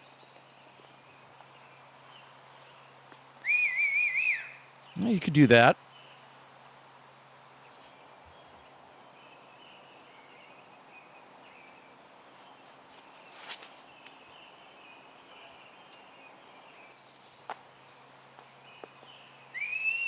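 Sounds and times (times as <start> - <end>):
faint bird chirping: 7.6 - 20.0.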